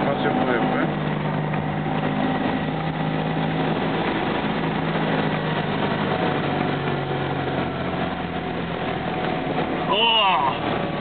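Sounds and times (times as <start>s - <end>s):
car engine running inside cabin: 0.0s - 11.0s.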